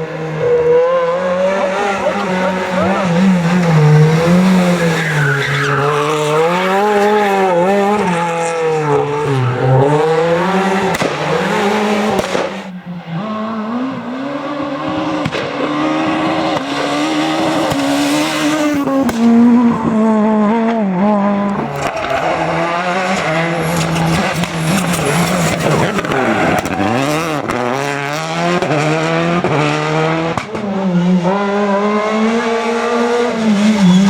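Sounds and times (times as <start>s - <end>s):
rally car engine revving: 0.0s - 34.0s
tyre squeal: 1.8s - 7.2s, 21.6s - 27.3s, 33.5s - 34.0s.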